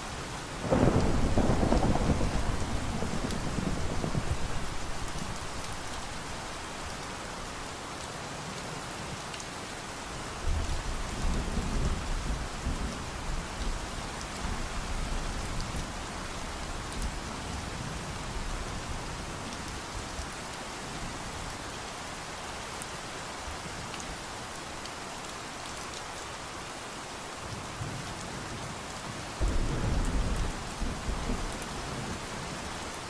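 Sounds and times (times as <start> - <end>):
steady rain: 0.0 - 33.0
low rumble of thunder: 0.6 - 6.2, 29.4 - 32.4.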